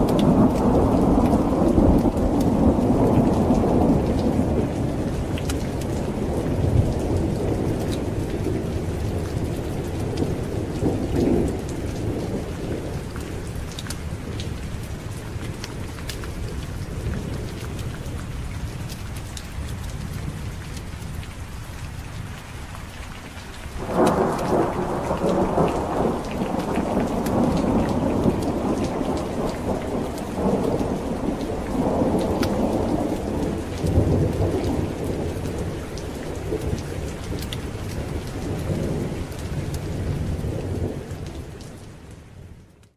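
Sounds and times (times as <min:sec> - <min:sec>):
loud rolling thunderclap: 0:00.0 - 0:13.6, 0:23.8 - 0:41.4
distant thunder rumble: 0:00.0 - 0:17.8, 0:23.8 - 0:41.7
heavy rain: 0:00.0 - 0:42.9.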